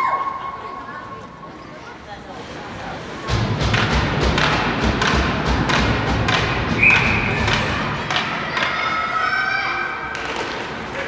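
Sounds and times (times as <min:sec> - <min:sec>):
hockey sticks and puck thumping: 0:03.2 - 0:11.0
crowd shouting or cheering: 0:05.8 - 0:10.6.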